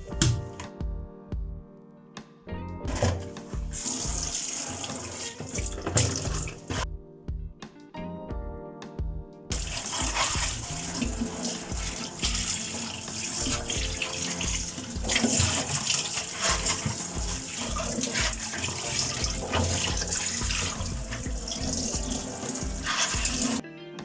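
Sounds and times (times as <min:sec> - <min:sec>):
tap water splashing into sink: 0:00.0 - 0:00.7, 0:02.9 - 0:06.8, 0:09.5 - 0:23.6
soft background music: 0:00.0 - 0:24.0.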